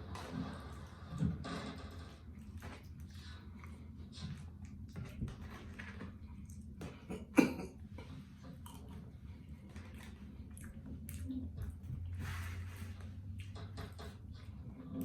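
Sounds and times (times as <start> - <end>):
chewing and mouth sounds: 2.3 - 15.0.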